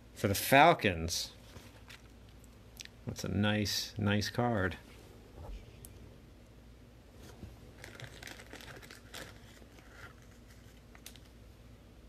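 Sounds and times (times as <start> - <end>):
cards and plastic crinkling: 7.2 - 11.4.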